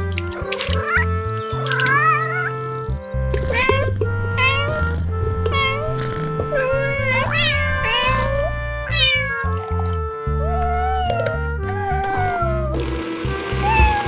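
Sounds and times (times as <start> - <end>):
background music with bass line: 0.0 - 14.0
cat meowing: 0.8 - 1.1, 1.7 - 2.6, 3.4 - 9.6, 10.4 - 12.8, 13.6 - 14.0.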